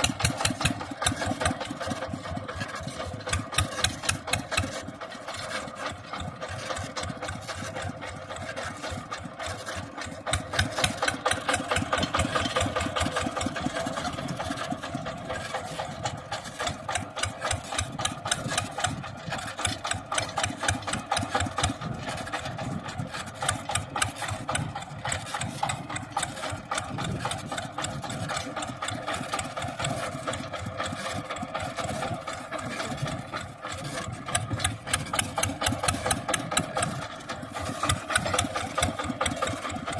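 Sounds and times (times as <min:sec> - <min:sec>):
tractor engine chugging: 0:00.0 - 0:39.9.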